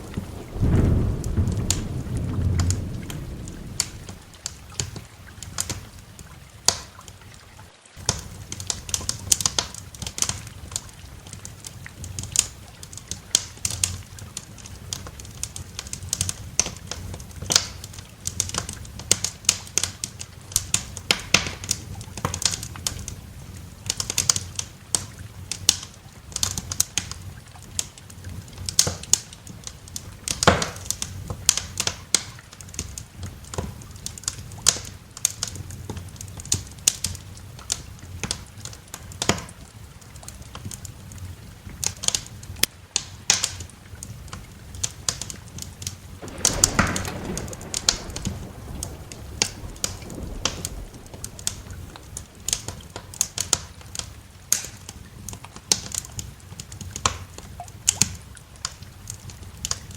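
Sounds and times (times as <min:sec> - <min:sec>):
thunder rumble: 0:00.0 - 0:06.0, 0:46.1 - 0:55.3
rain hissing: 0:00.0 - 0:27.4, 0:28.1 - 0:59.9
wood fire crackling: 0:00.0 - 0:59.9.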